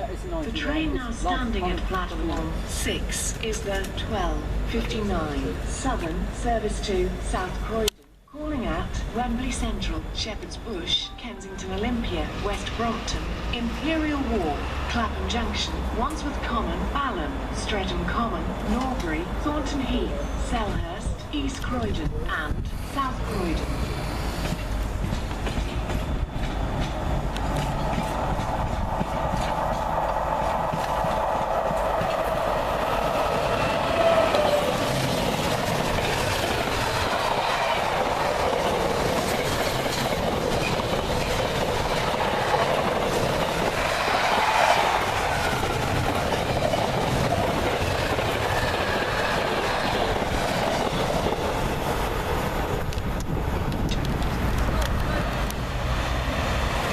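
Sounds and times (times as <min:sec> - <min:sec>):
train rail rumble: 0:08.6 - 0:56.9
wheels clicking over rail joints: 0:24.3 - 0:56.9.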